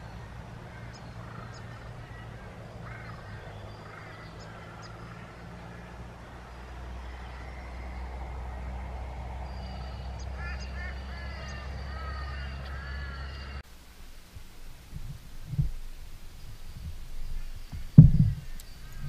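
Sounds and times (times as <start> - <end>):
birds chirping and calling: 0.0 - 13.6, 15.7 - 19.0
steady low rumble: 0.0 - 19.0.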